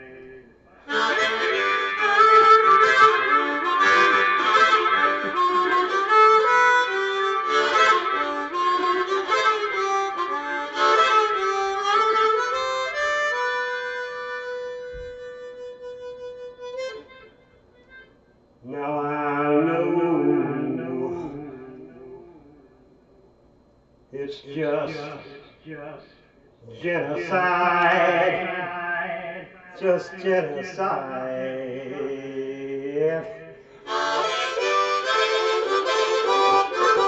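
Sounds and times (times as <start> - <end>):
blues harmonica solo: 0.8 - 18.2, 33.6 - 37.0.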